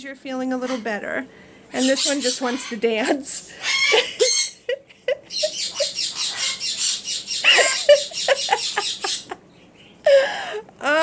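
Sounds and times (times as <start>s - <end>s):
birds chirping: 0.3s - 10.3s
bird squawk: 0.6s - 1.0s, 1.7s - 4.7s, 5.3s - 10.0s.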